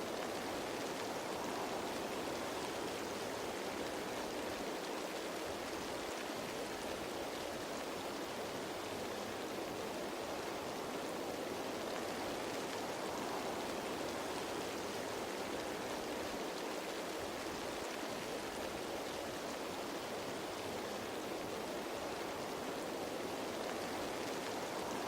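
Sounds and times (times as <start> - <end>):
rain falling on leaves: 0.0 - 25.0.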